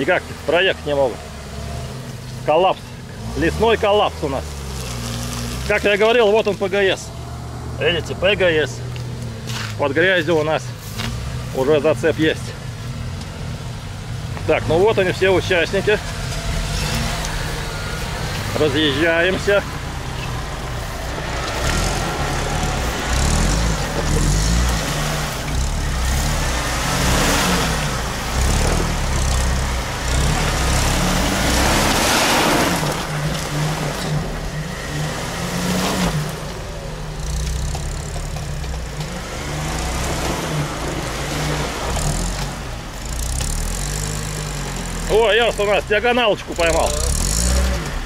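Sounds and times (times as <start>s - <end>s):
suv engines revving: 0.0s - 48.0s
wheels spinning in mud: 3.3s - 7.1s, 14.5s - 48.0s.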